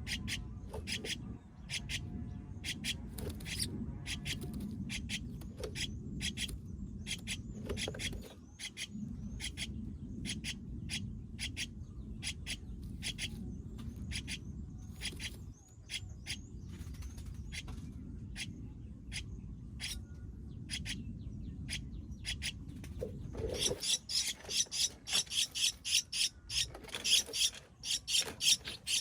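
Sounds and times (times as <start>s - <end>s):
steady low rumble: 0.0s - 26.7s
nestling bird chirping: 21.6s - 29.0s.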